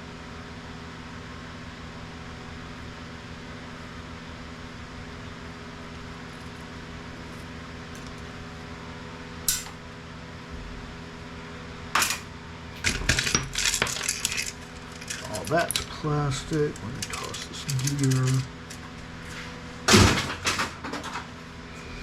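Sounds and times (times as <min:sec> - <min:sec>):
steady background hum: 0:00.0 - 0:22.0
pieces clattering: 0:12.0 - 0:21.3
scrap parts clinking: 0:12.0 - 0:21.3.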